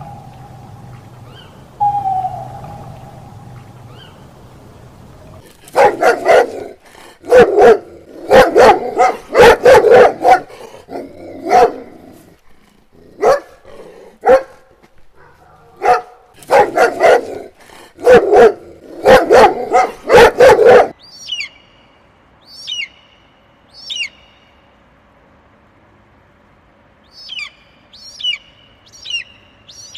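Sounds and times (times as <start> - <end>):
bird calling: 0.0 - 6.6, 19.0 - 24.6, 27.1 - 29.9
dog barking: 5.7 - 12.0, 13.2 - 21.0.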